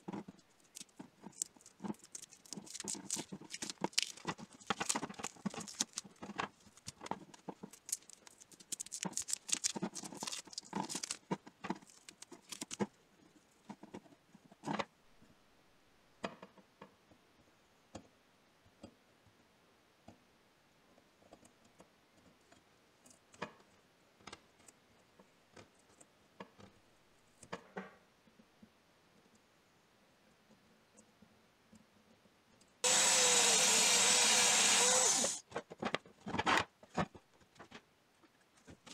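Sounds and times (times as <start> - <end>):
metal pincers crackling and rustling: 0.0 - 13.0.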